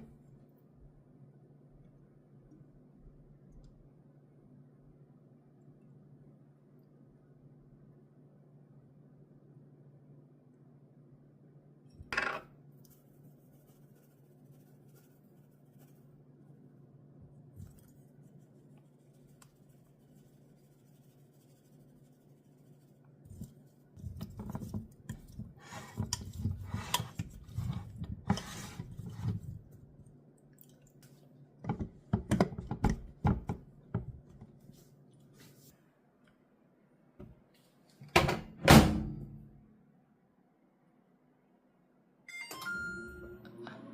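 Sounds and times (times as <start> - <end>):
faint steady hum: 0.0 - 43.9
kitchenware scraping and clicking: 24.2 - 29.5.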